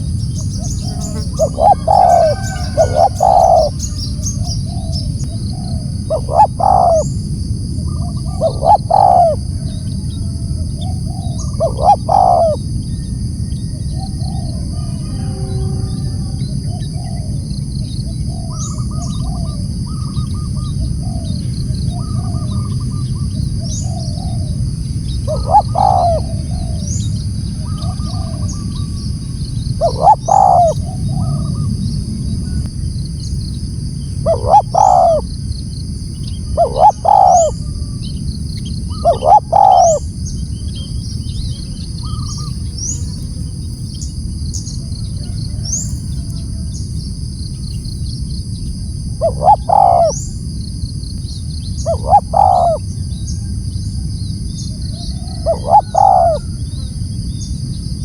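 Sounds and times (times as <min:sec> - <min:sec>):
dove cooing: 0:00.0 - 0:07.2, 0:07.8 - 0:32.6, 0:34.2 - 0:35.3, 0:36.4 - 0:38.0, 0:38.9 - 0:40.1, 0:49.2 - 0:50.3, 0:51.8 - 0:52.9, 0:54.7 - 0:57.0
soft repeated bird notes: 0:00.0 - 0:07.3, 0:07.9 - 0:09.4, 0:10.8 - 0:24.4, 0:25.0 - 0:31.8, 0:34.3 - 0:35.2, 0:36.2 - 0:37.6, 0:38.6 - 0:43.0, 0:49.2 - 0:50.3, 0:51.3 - 0:52.8
steady low hum: 0:00.0 - 0:58.0
steady high buzz: 0:12.2 - 0:18.8.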